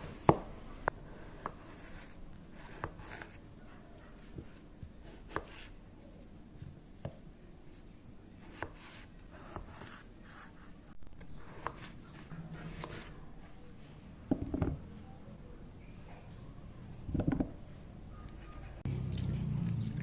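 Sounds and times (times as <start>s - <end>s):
blade scraping potato: 11.4s - 13.2s.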